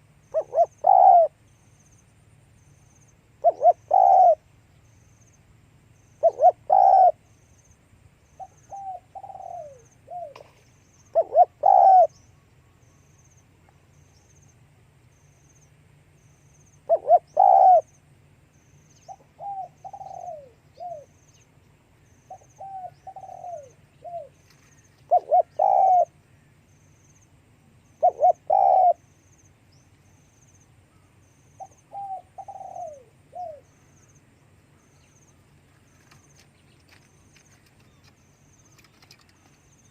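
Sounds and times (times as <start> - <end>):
dove cooing: 0.0 - 1.4, 3.4 - 4.5, 6.2 - 7.2, 8.4 - 12.2, 16.8 - 17.9, 19.0 - 21.2, 22.2 - 26.2, 28.0 - 29.1, 31.6 - 33.8.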